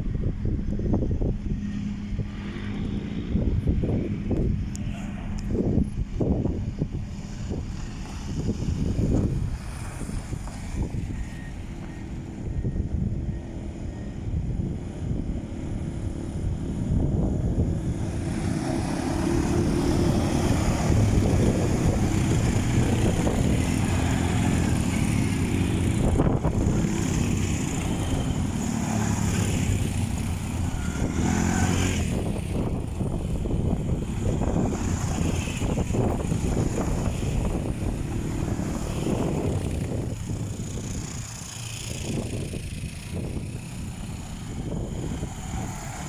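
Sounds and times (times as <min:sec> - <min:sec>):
quad bike engine: 0:00.0 - 0:46.0
wind buffeting microphone: 0:00.0 - 0:46.0.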